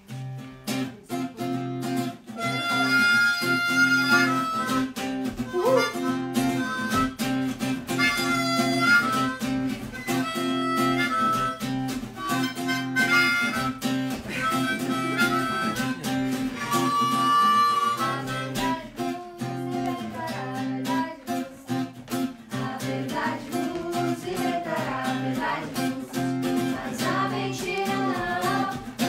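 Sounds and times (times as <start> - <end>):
acoustic guitar strumming: 0.0 - 29.0
wind instrument melody: 2.3 - 19.1.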